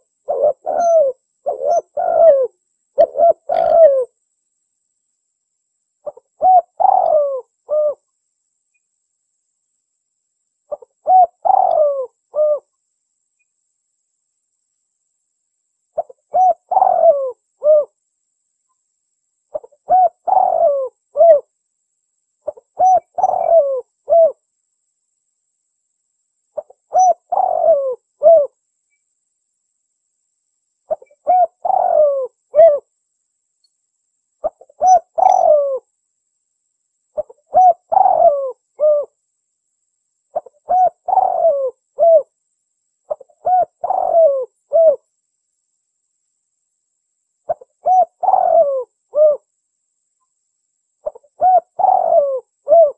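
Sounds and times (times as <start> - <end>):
dove cooing: 0.0 - 4.2, 6.0 - 8.0, 10.7 - 12.7, 16.0 - 18.0, 19.5 - 21.5, 22.4 - 24.4, 26.6 - 28.6, 30.9 - 32.9, 34.4 - 35.9, 37.2 - 39.2, 40.3 - 42.3, 43.1 - 45.0, 47.5 - 49.5, 51.0 - 52.9.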